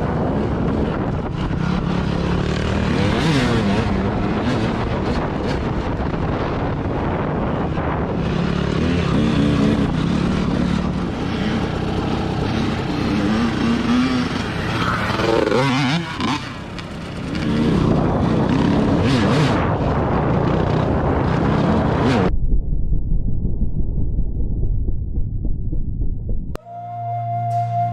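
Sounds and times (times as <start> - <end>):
motorcycle engine revving: 0.0 - 22.3
wind noise on microphone: 0.0 - 27.9.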